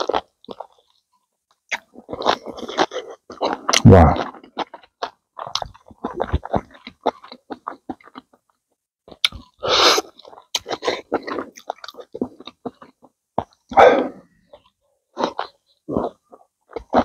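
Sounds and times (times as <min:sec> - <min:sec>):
chewing and lip smacking: 0:01.6 - 0:13.8.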